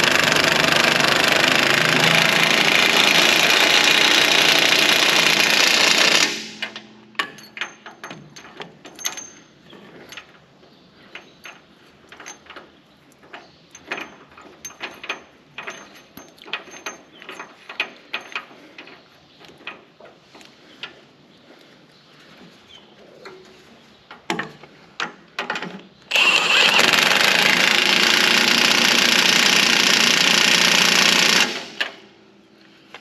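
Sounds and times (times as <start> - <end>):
machine running: 0.0 - 6.8
metallic clanks of hand tools: 6.5 - 10.4.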